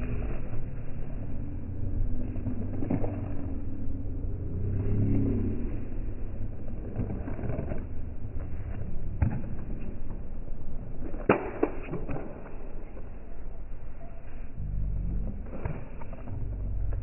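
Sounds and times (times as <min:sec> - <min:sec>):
diesel engine rumble: 0:00.0 - 0:10.5, 0:14.6 - 0:17.0.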